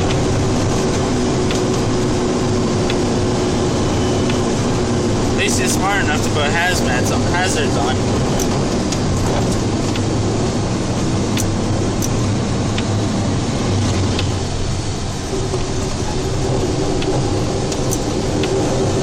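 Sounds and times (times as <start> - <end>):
road noise: 0.0 - 19.0
truck engine drone: 0.0 - 19.0.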